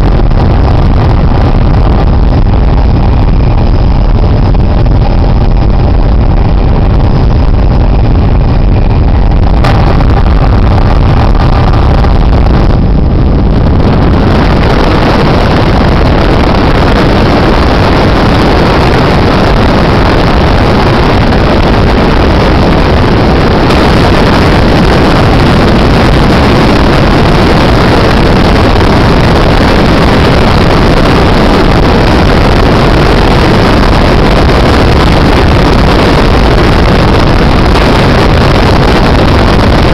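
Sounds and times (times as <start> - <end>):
helicopter engine and rotor noise: 0.0 - 27.2.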